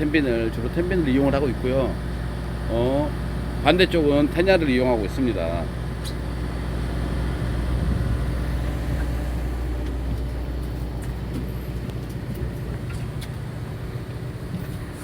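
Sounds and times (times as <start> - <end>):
boat engine low hum: 0.0 - 15.0.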